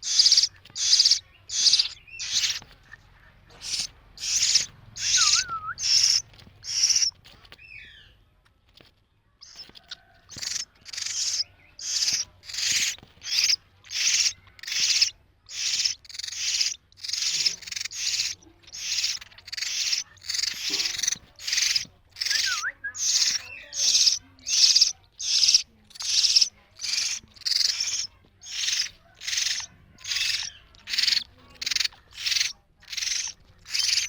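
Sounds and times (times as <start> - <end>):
chicks giving hissing begging calls: 0.0 - 2.7, 3.5 - 7.1, 9.4 - 34.0.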